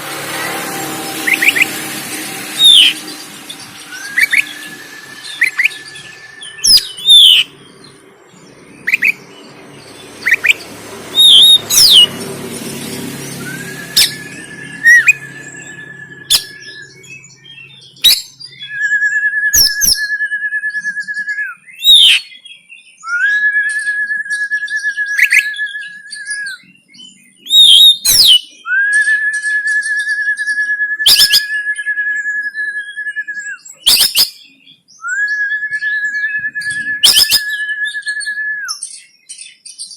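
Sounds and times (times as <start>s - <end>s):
long buzzing rattles: 0.0s - 7.8s, 9.3s - 17.0s
bird whistled song: 0.0s - 12.2s, 12.8s - 39.9s.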